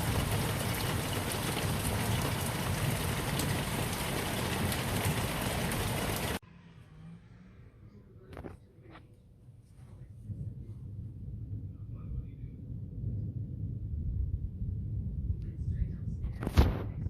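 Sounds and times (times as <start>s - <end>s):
heavy rain falling: 0.0s - 6.4s.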